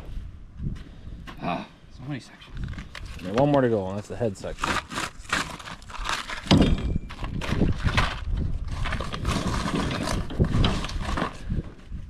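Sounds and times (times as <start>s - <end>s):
cardboard packaging rustling: 4.4s - 11.4s.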